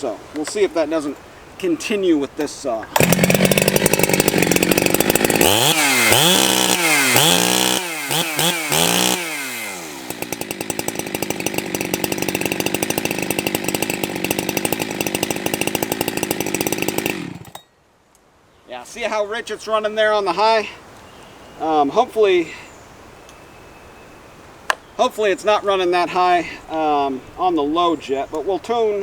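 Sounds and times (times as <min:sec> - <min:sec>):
chainsaw idling: 0:02.9 - 0:17.6
chainsaw revving: 0:02.9 - 0:17.6.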